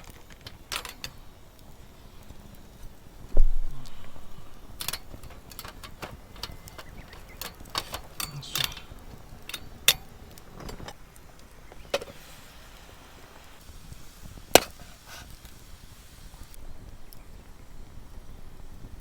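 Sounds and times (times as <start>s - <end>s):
light clinks and clatters: 0.0s - 12.6s.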